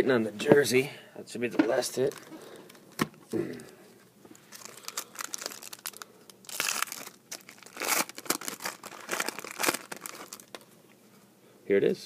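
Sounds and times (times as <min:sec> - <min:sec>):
foil wrapper crinkling and tearing: 0:04.4 - 0:10.7.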